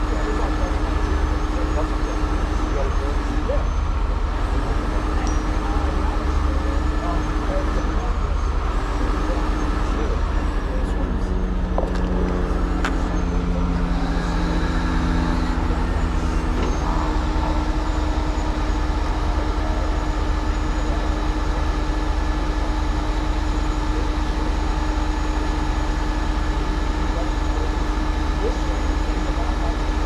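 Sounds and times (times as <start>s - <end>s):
crane truck engine running: 0.0s - 30.0s.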